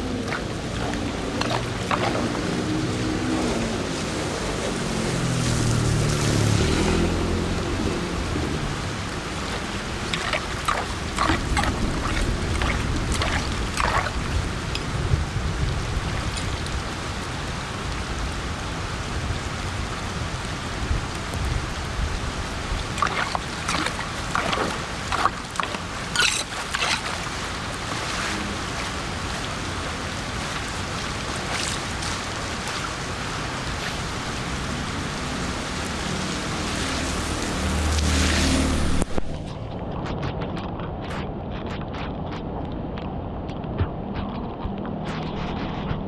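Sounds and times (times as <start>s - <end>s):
rain and floodwater rushing: 0.0s - 46.0s
sharp knocks and scrapes: 23.0s - 27.4s
low rumble: 37.8s - 46.0s.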